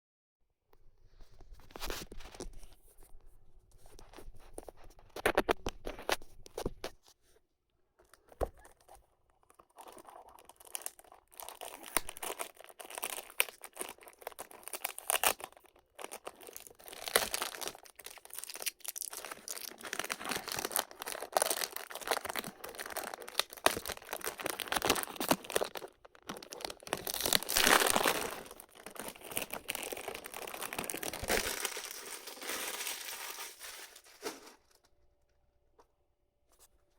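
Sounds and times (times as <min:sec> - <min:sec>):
crackles and clicks: 0:08.0 - 0:35.4
packaging crinkling and tearing: 0:08.4 - 0:34.9.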